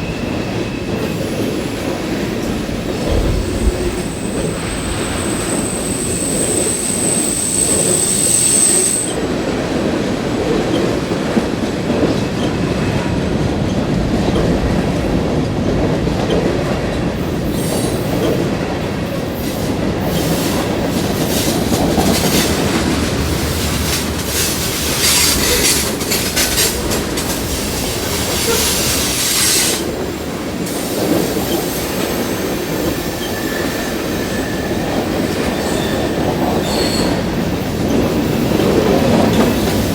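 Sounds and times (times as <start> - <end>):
train wheels rumbling on rails: 0.0 - 39.9
high wheel squeal: 4.0 - 9.3, 20.1 - 29.9, 30.8 - 37.3
clickety-clack over rail joints: 9.0 - 39.9.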